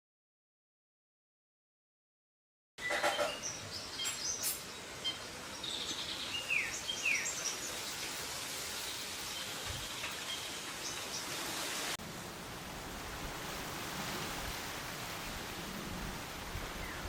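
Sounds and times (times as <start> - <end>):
birds chirping and calling: 2.8 - 11.4
steady outdoor hiss: 2.8 - 17.0.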